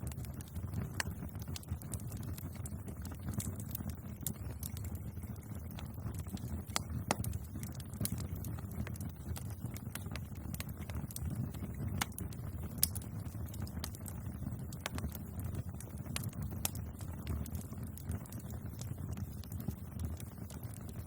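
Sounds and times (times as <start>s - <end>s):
bonfire snaps and pops: 0.0s - 21.0s
low rumble of burning: 0.0s - 21.0s.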